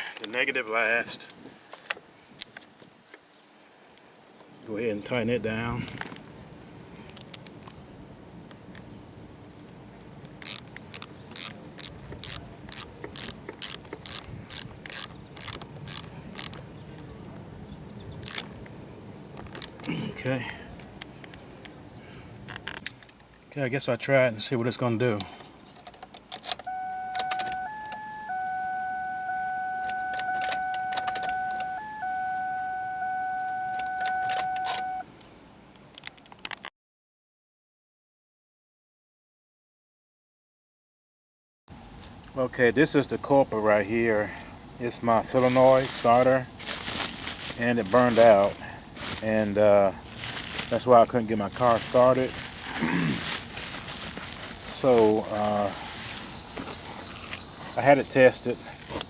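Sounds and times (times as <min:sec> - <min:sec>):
ratchet wrench clicking: 0:10.4 - 0:16.6
clicks: 0:25.8 - 0:35.0
car electronic warning tone: 0:26.6 - 0:35.1.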